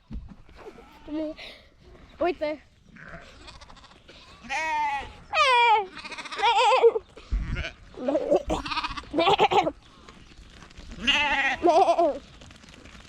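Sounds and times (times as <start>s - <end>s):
sheep bleating: 3.0s - 9.7s, 11.0s - 12.2s.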